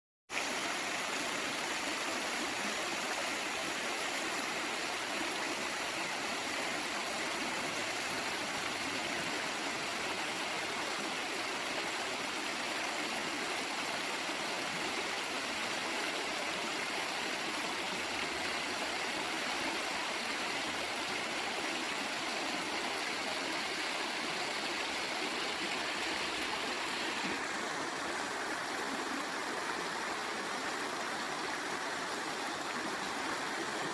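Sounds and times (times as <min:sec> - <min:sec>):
waterfall pouring and splashing: 0:17.1 - 0:29.7.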